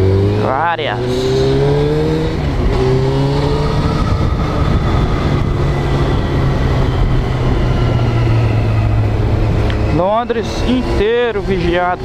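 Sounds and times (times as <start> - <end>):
motorcycle engine running: 0.0 - 12.0
steady rushing noise: 0.1 - 12.0.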